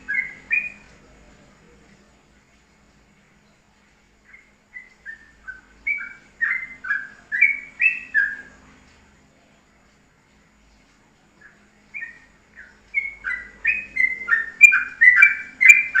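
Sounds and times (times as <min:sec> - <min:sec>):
songbird whistling: 0:00.0 - 0:01.0, 0:04.2 - 0:08.6, 0:11.4 - 0:16.0.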